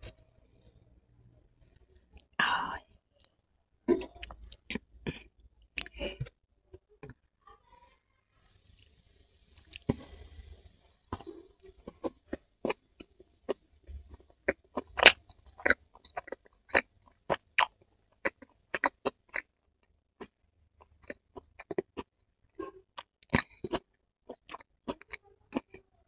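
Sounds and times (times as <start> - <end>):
soft hiss: 8.1 - 18.6
chewing with wet mouth clicks: 9.5 - 10.0, 14.5 - 19.5, 20.2 - 25.9.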